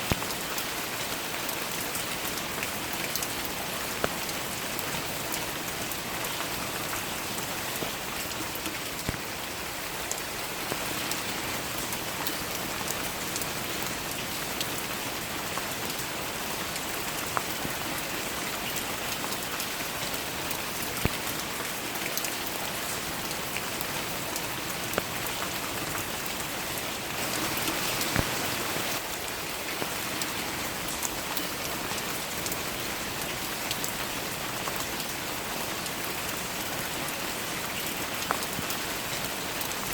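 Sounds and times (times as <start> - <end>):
steady rain falling: 0.0 - 39.9
single raindrops striking close: 8.6 - 9.3, 23.6 - 29.1.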